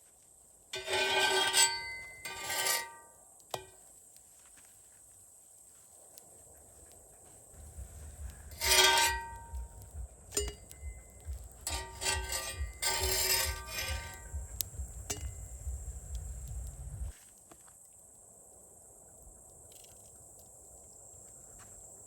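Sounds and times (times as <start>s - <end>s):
metal scraping: 0.8s - 3.7s, 8.0s - 17.1s
pulsing low rumble: 7.6s - 8.6s, 9.5s - 11.7s, 12.6s - 17.1s
metal clinks: 8.5s - 15.6s.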